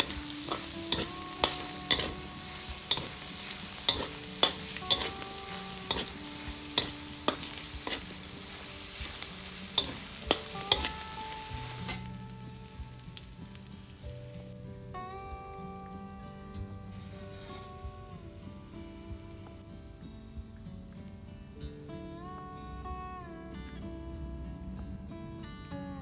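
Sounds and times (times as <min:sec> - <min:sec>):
spatula scraping a pan: 0:00.0 - 0:12.1
food sizzling in a pan: 0:00.0 - 0:24.6.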